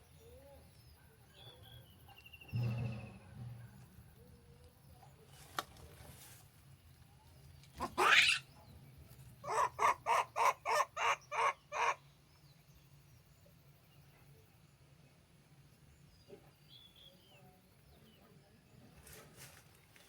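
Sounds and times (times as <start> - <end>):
animal calling harshly: 7.8 - 8.4.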